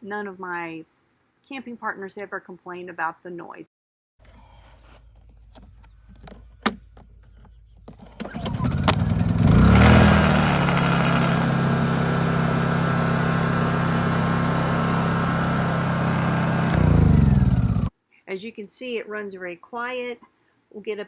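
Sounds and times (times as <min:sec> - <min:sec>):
generator engine starting: 0:07.9 - 0:17.9.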